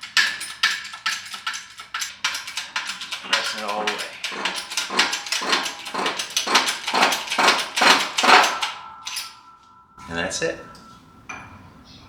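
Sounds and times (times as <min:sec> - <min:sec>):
shop press strokes: 0:00.0 - 0:09.6.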